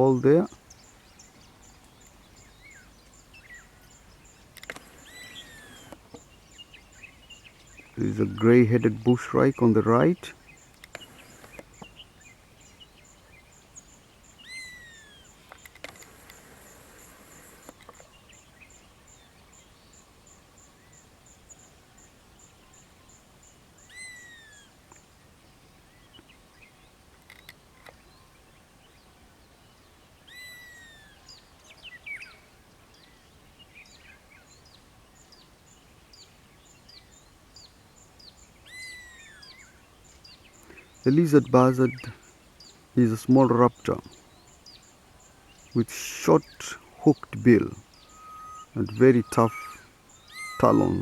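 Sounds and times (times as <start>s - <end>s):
other birds calling: 0.0s - 51.0s
buzzard falling whistle call: 48.1s - 51.0s.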